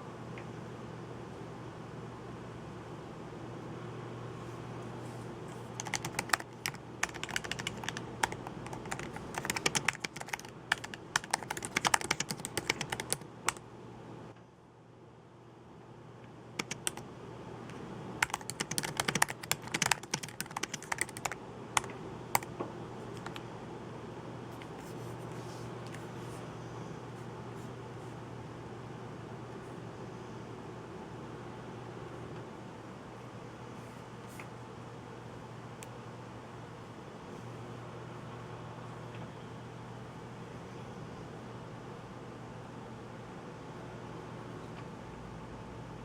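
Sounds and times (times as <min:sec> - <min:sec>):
faint low hum: 0:00.0 - 0:46.0
typing on a keyboard: 0:05.8 - 0:13.6, 0:16.6 - 0:17.0, 0:18.2 - 0:22.5, 0:23.1 - 0:23.4.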